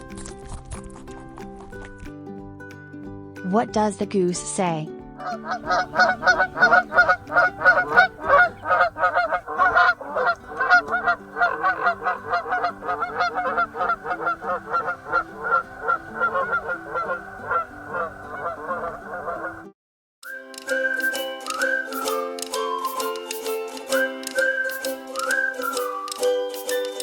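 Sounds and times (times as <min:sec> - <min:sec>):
geese honking: 0:05.2 - 0:19.7.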